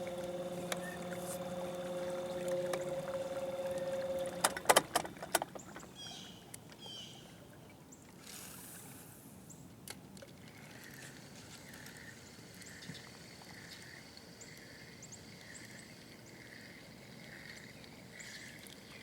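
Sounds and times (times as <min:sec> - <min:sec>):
boat motor humming: 0:00.0 - 0:07.0.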